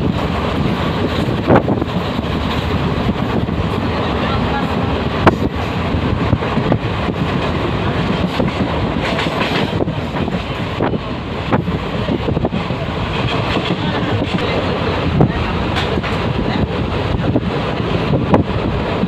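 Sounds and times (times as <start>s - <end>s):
train rumble: 0.0s - 19.0s
wheels clicking over rail joints: 7.2s - 11.0s, 11.6s - 16.8s.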